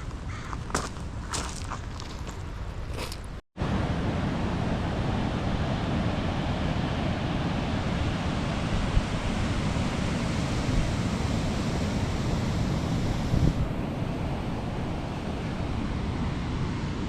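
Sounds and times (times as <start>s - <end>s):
ocean surf roaring: 3.6s - 17.0s
wind buffeting microphone: 4.8s - 17.0s.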